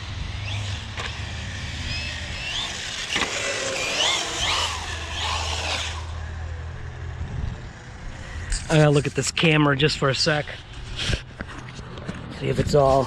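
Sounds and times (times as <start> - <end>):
rc car electric motor whining: 0.0 - 6.7.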